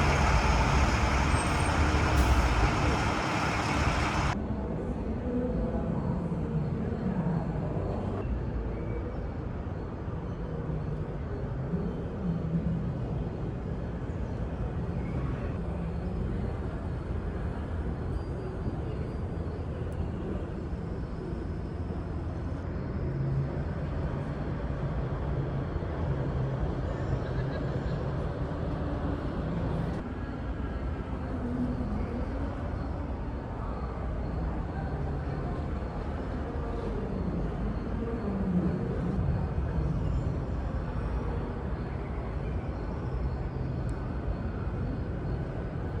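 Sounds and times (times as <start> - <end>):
truck engine rumbling: 0.0 - 4.4.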